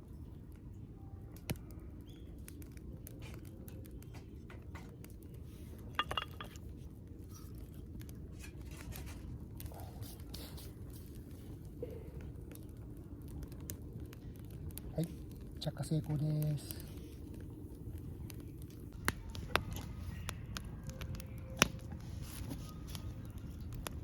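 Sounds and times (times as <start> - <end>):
campfire crackling and popping: 0.0 - 24.0
metallic clinks: 6.0 - 6.6.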